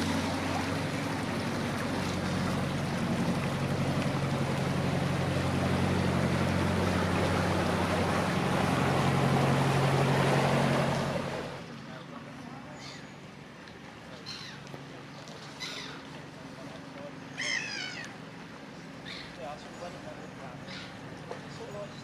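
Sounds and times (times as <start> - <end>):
motorboat engine running: 0.0 - 22.0
water noise: 0.0 - 22.0.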